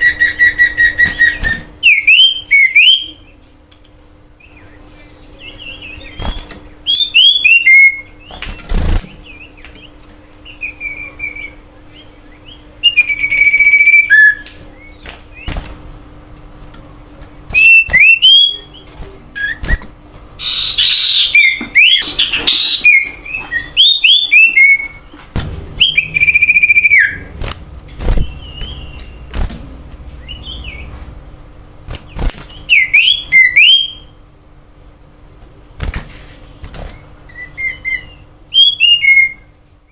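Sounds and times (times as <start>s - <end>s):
bird singing whistled phrases: 0.0s - 3.3s, 5.5s - 8.4s, 10.5s - 15.5s, 17.6s - 19.8s, 20.4s - 25.1s, 25.8s - 27.3s, 28.2s - 29.3s, 32.7s - 34.2s, 37.3s - 39.5s
harsh bird chattering: 20.4s - 24.8s.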